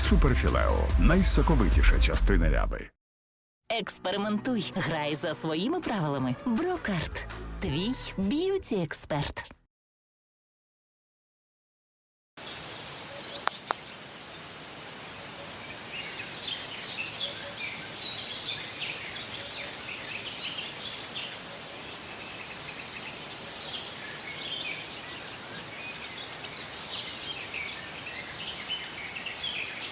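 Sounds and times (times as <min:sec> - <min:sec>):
outdoor ambience hiss: 0:12.4 - 0:29.9
small birds chirping: 0:12.4 - 0:29.9.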